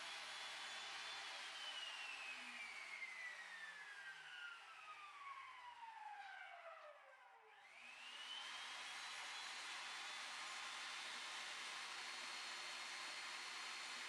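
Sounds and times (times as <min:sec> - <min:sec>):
power tool motor whining: 0:08.0 - 0:14.0.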